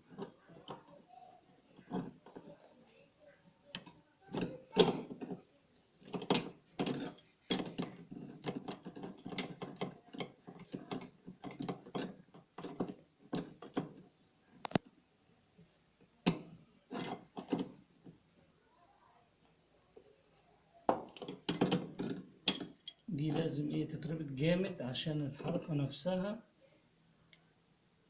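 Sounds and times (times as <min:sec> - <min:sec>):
metal parts clicking and knocking: 0:00.0 - 0:01.0, 0:01.8 - 0:02.6, 0:06.0 - 0:14.9, 0:16.2 - 0:18.2, 0:20.9 - 0:23.1.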